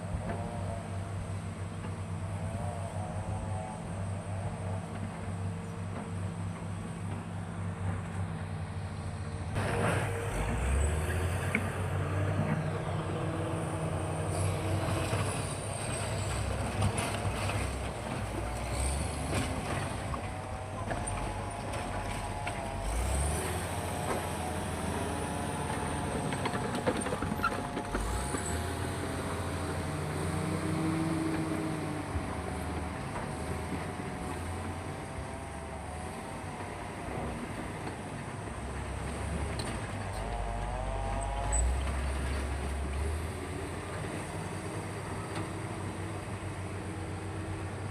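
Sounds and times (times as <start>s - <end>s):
excavator diesel engine droning: 0.0s - 47.9s
hydraulic whine: 9.6s - 47.6s
machine squeals: 12.4s - 29.8s, 39.5s - 43.2s.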